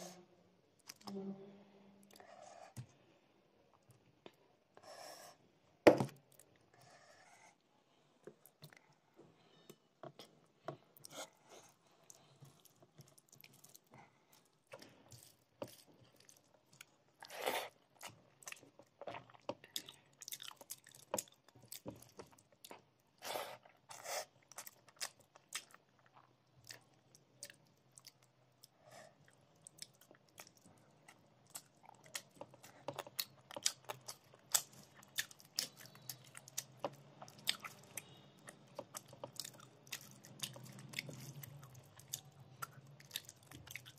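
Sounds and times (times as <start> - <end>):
wet chewing clicks: 29.3 - 43.9.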